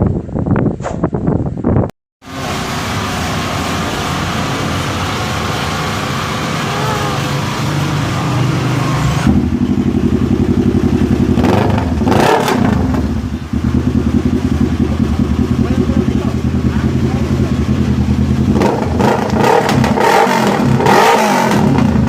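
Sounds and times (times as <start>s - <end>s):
motorcycle engine idling: 9.3s - 20.0s.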